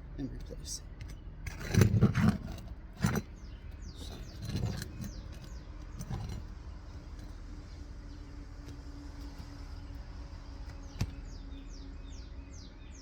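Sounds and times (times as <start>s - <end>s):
metal bar knocking and scraping: 1.0s - 7.4s
bird chirping: 3.2s - 6.4s, 9.8s - 13.0s.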